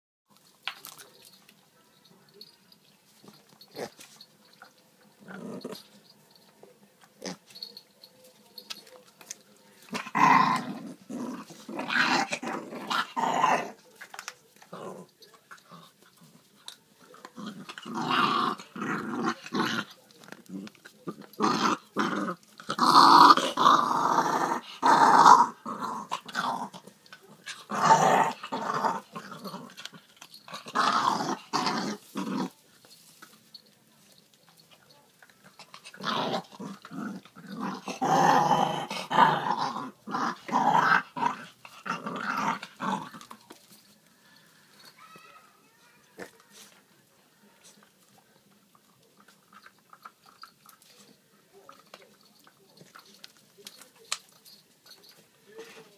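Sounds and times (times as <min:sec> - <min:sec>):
dog growling: 0:05.2 - 0:06.0, 0:09.9 - 0:13.8, 0:14.6 - 0:16.3, 0:17.2 - 0:32.6, 0:35.4 - 0:43.5.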